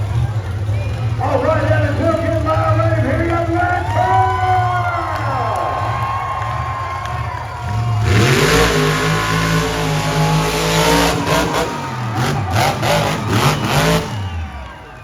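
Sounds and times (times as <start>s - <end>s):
monster truck engine revving: 0.0s - 15.0s.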